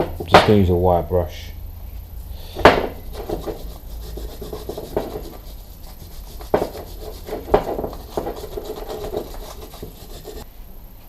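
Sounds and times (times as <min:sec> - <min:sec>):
sharp knocks: 0:00.0 - 0:00.6, 0:02.5 - 0:05.4, 0:06.4 - 0:10.4
wire brush scrubbing metal: 0:02.2 - 0:10.4.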